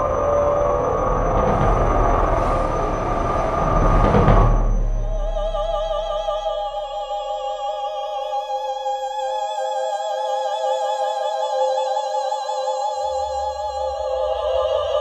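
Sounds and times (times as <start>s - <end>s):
dense noise over deep rumble: 0.0s - 8.4s
women singing operatic harmony: 5.0s - 15.0s.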